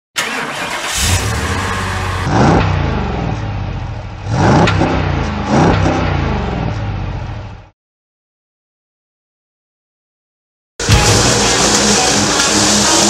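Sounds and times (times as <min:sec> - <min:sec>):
engine revving under load: 0:00.2 - 0:07.6.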